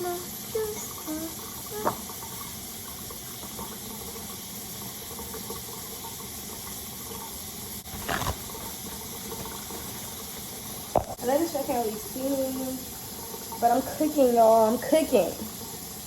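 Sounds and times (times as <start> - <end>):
tap water running into sink: 0.0 - 16.0.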